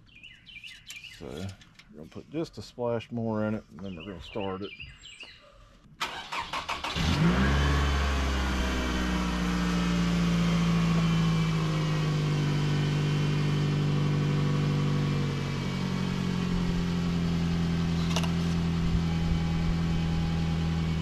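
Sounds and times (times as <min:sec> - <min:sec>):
car engine idling: 0:06.0 - 0:21.0.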